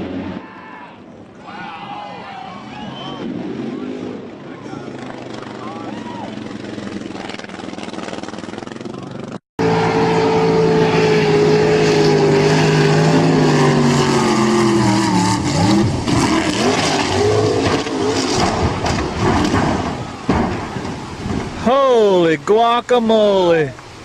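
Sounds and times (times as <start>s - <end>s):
loud engine with pitched tone: 3.0s - 19.9s.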